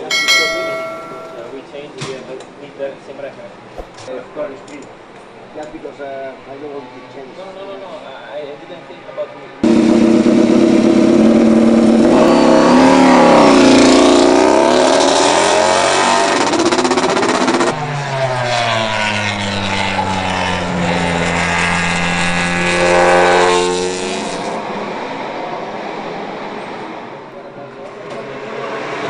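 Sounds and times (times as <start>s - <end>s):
racing motorcycle engine revving: 9.6s - 24.6s.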